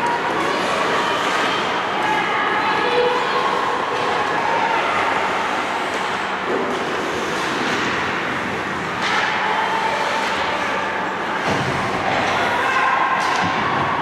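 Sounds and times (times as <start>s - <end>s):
ice hockey rink ambience: 0.0s - 14.0s.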